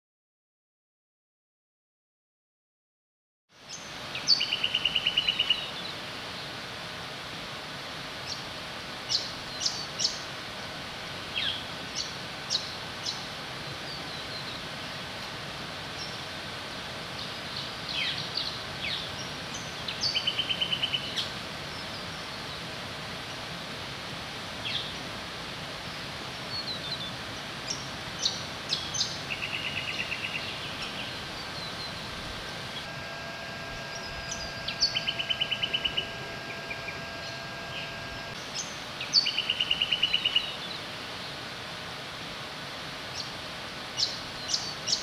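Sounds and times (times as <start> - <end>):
outdoor background hiss: 3.5 - 45.0
rapid bird trill: 32.8 - 40.6
high bird chirps: 33.7 - 40.6.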